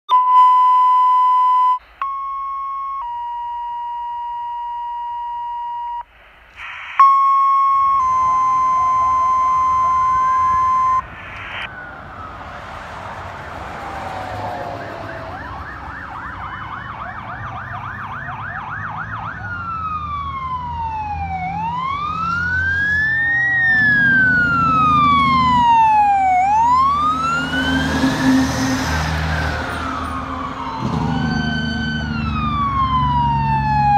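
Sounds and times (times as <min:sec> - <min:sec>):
electronic siren yelp and wail: 0:00.1 - 0:06.0, 0:07.0 - 0:33.9
dispatch alert tone beeps: 0:00.1 - 0:06.1, 0:06.7 - 0:11.7
diesel engine rumble: 0:19.4 - 0:33.9.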